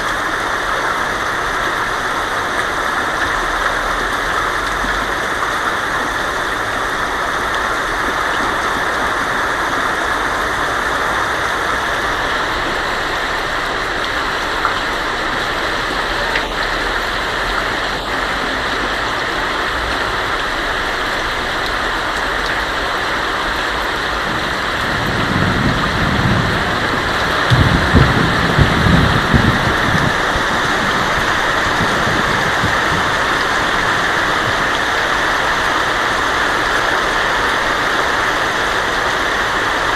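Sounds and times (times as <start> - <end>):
rain on a tin roof: 0.0 - 39.9
thunder rumbling: 21.2 - 36.2.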